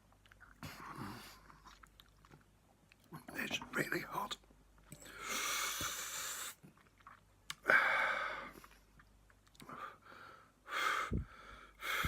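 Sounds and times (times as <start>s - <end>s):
chewing: 0.0s - 3.2s, 6.5s - 7.6s, 8.6s - 9.7s
breathy rush of air from mouth: 5.1s - 6.6s.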